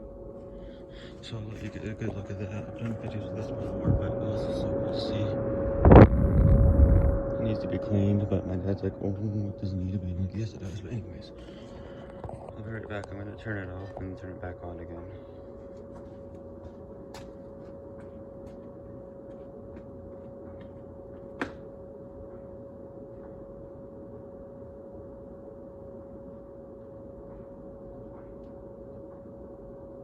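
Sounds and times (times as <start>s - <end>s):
clothes dryer humming: 0.0s - 18.2s
air rushing from vent: 3.0s - 7.7s.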